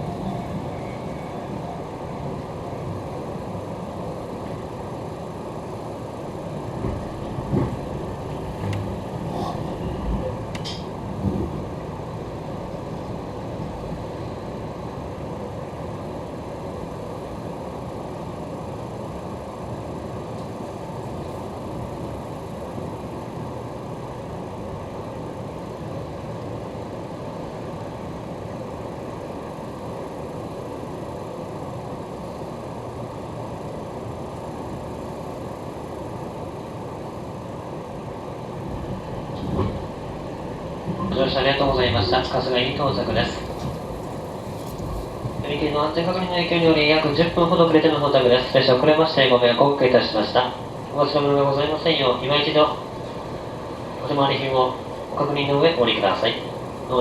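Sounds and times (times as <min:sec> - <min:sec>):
train wheels rumbling: 0:00.0 - 0:17.3, 0:37.8 - 0:57.0.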